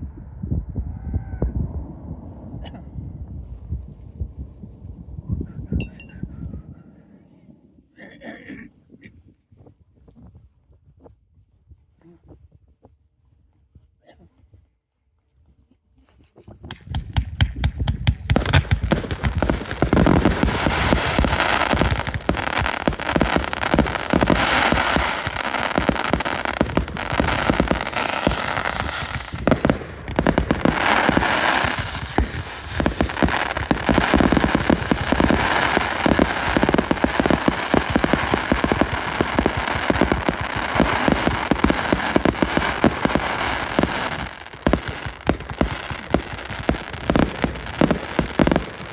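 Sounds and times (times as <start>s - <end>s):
fireworks bangs and crackling: 16.7s - 48.9s.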